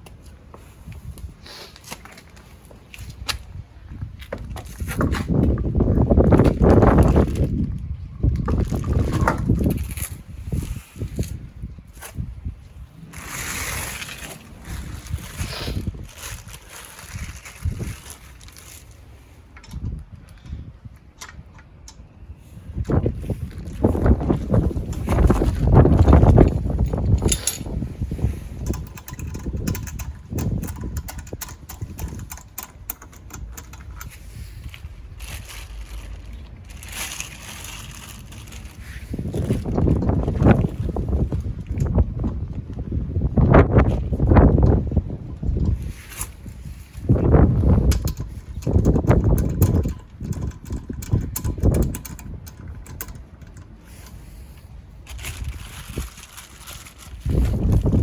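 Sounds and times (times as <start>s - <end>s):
wind buffeting microphone: 0.0s - 1.5s, 2.6s - 58.0s
ratchet wrench clicking: 28.6s - 34.1s, 47.9s - 54.2s.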